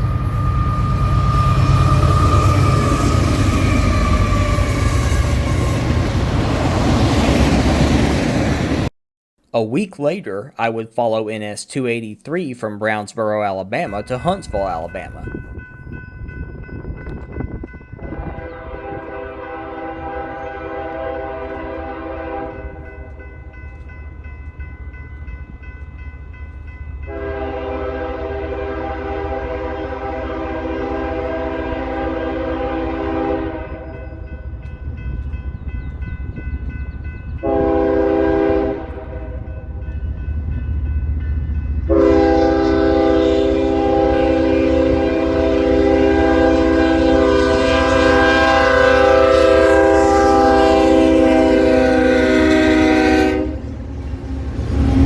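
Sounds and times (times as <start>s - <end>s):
locomotive air horn: 18.0s - 22.8s, 27.1s - 34.0s, 37.4s - 39.4s, 41.9s - 53.7s.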